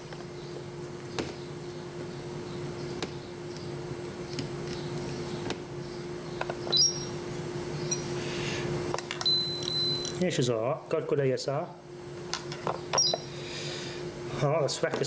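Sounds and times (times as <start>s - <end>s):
room appliance humming: 0.0s - 15.0s
high electronic chirp: 6.7s - 7.2s.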